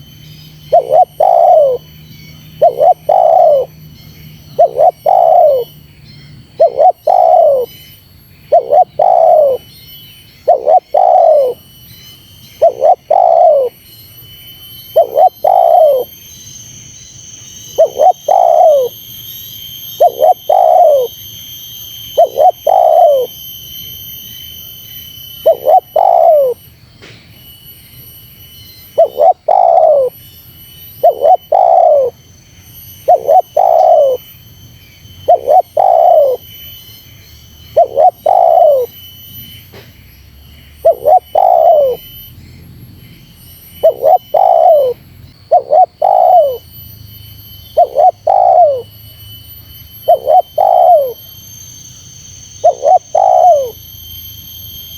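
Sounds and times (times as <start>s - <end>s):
dove cooing: 0.6s - 1.9s, 2.6s - 3.8s, 4.5s - 5.7s, 6.6s - 7.8s, 8.5s - 9.6s, 10.4s - 11.6s, 12.6s - 13.8s, 15.0s - 16.1s, 17.8s - 18.9s, 20.0s - 21.1s, 22.2s - 23.3s, 25.4s - 26.6s, 29.0s - 30.1s, 31.0s - 32.2s, 33.1s - 34.2s, 35.2s - 36.4s, 37.7s - 38.9s, 40.8s - 42.1s, 43.8s - 46.6s, 47.8s - 48.9s, 50.1s - 51.2s, 52.6s - 53.8s.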